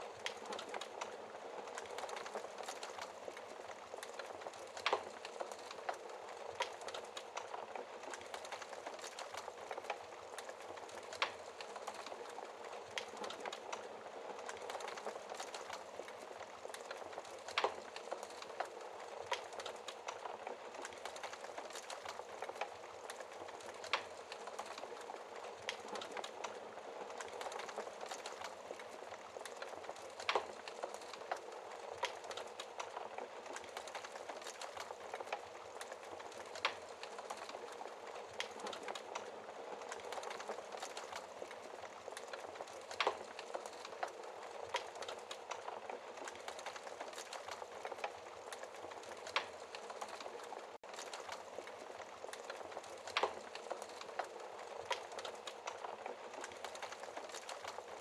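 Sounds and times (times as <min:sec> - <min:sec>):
fire popping: 0:00.0 - 0:58.0
wood fire crackling: 0:00.0 - 0:58.0.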